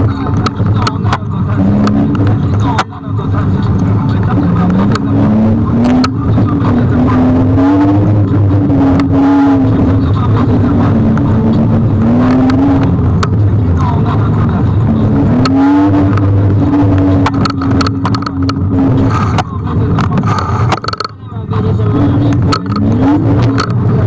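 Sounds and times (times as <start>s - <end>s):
sharp clicks and knocks: 0.0s - 21.2s, 22.2s - 24.0s
wind and road noise: 0.0s - 24.0s
electric motor whining: 3.4s - 21.1s.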